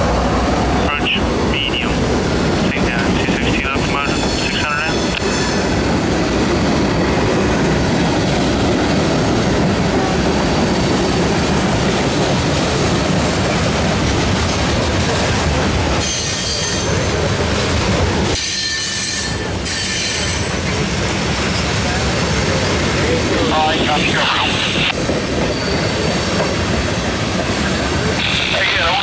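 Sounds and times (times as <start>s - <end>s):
train wheels clattering on rail: 0.0s - 23.5s, 24.8s - 28.2s
high wheel squeal: 16.0s - 17.2s, 18.3s - 20.6s, 25.3s - 27.1s.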